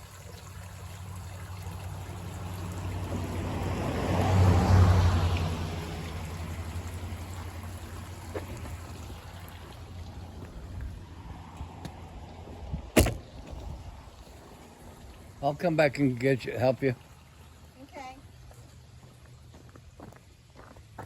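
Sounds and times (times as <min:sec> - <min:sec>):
spring water trickling: 0:00.0 - 0:21.0
car driving past: 0:01.8 - 0:12.4.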